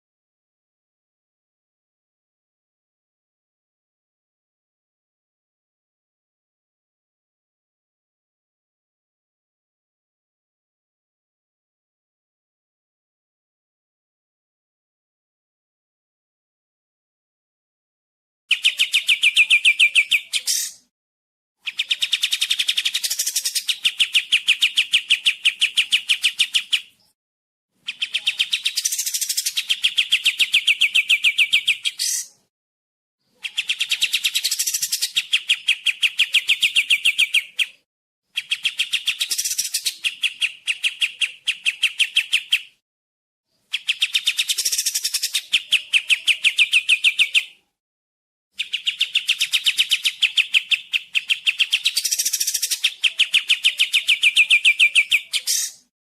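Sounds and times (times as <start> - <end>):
bird trilling sharp chips: 48.6 - 54.0.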